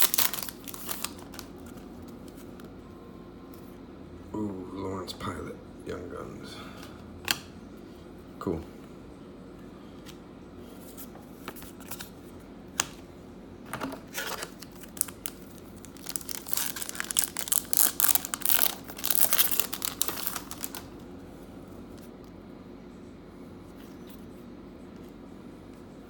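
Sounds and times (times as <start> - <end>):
wrapper crinkling and tearing: 0.0 - 1.8, 14.1 - 21.0.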